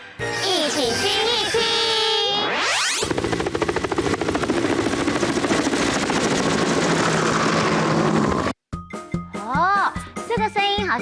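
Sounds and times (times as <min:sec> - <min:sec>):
helicopter engine hum: 0:03.0 - 0:08.6
helicopter rotor blades chopping: 0:03.0 - 0:08.6.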